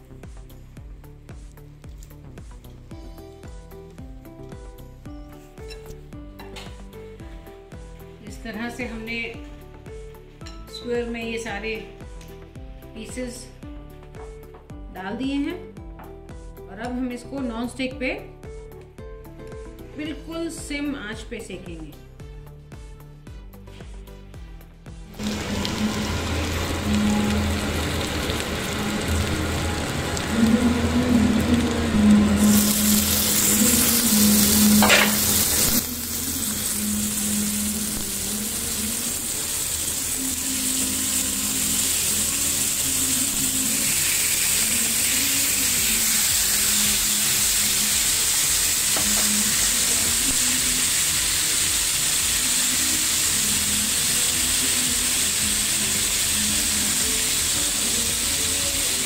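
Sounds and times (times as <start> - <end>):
food sizzling in oil: 25.1 - 59.0.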